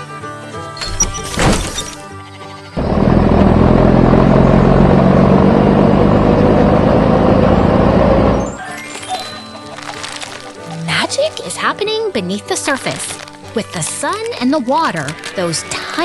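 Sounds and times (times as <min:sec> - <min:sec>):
loud vehicle engine running: 0:02.8 - 0:08.6
cartoon background music: 0:08.4 - 0:16.0.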